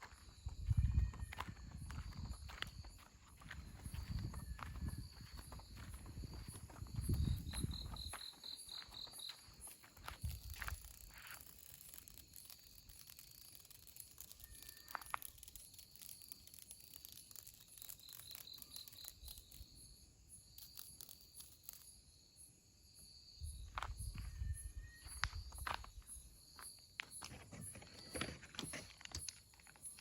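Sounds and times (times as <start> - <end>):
high-pitched insect chirring: 0.0 - 27.2
small clicks: 10.0 - 19.8.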